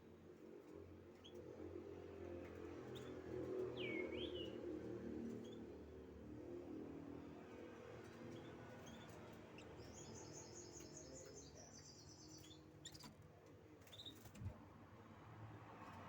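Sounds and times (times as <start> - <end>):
canary chirps: 2.8 - 4.7, 5.3 - 5.8, 8.3 - 13.2, 13.8 - 14.4.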